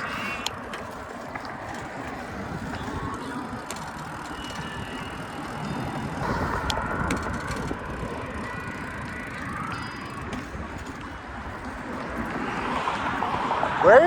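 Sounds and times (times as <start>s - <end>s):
road noise: 0.0s - 14.0s
wind rumbling on microphone: 0.0s - 14.0s.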